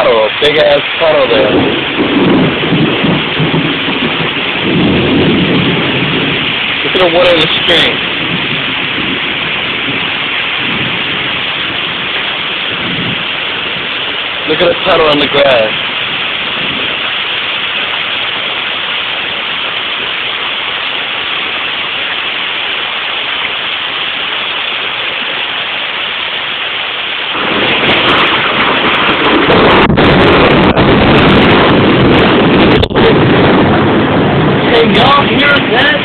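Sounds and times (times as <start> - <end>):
rumble of thunder: 0.0 - 19.7, 27.3 - 36.0
rain falling: 0.0 - 36.0.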